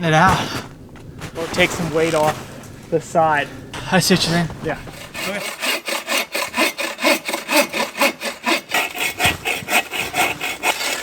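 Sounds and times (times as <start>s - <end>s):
hand saw cutting wood: 4.2s - 11.0s.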